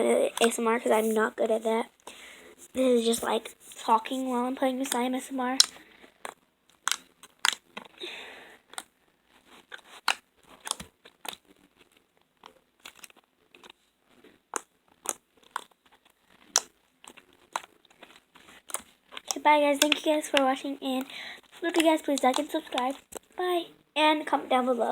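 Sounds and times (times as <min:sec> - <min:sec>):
slime clicking and popping: 0:16.5 - 0:16.7.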